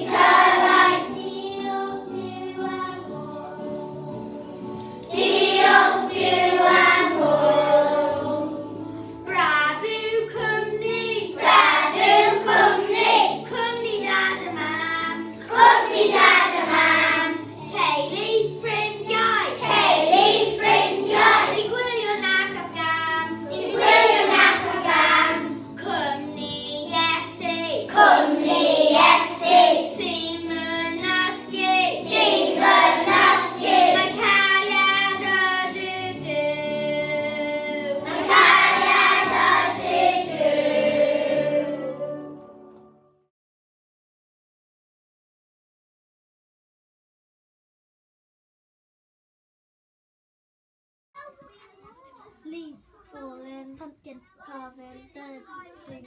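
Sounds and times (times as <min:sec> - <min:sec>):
children singing together: 0:00.0 - 0:42.9
musical backing: 0:00.0 - 0:43.0.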